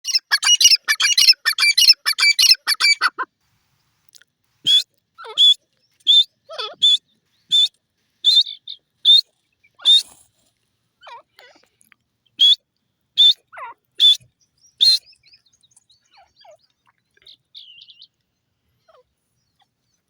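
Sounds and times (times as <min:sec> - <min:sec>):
francolin calling: 0:00.0 - 0:03.3, 0:04.7 - 0:10.2, 0:13.2 - 0:18.2.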